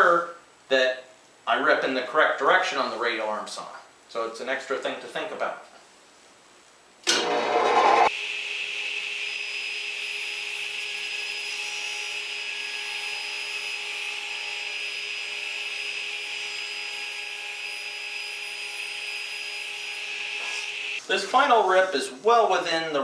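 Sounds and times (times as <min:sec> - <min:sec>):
saw motor whining: 0:07.1 - 0:21.0.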